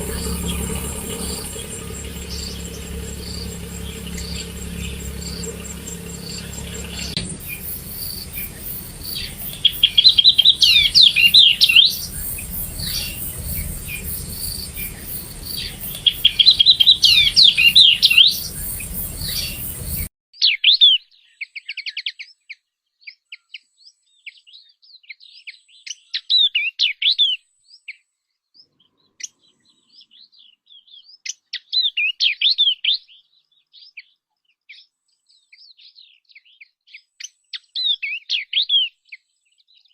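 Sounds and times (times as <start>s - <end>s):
steady hiss: 0.0s - 20.1s
bird singing whistled notes: 0.0s - 21.1s.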